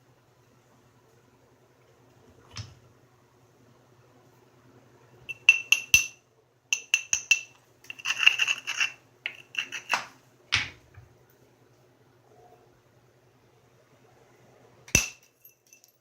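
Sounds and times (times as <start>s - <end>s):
knapping tool tapping stone: 5.3s - 6.2s, 6.8s - 10.7s, 15.0s - 15.3s
scraping and rubbing on stone: 7.9s - 10.1s.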